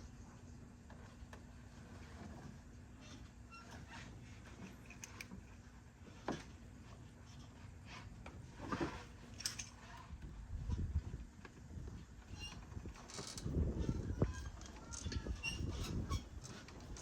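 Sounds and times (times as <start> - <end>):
low rumble of handling: 0.0 - 17.0
clicks of hand tools and metal parts: 4.6 - 5.3, 9.3 - 10.0.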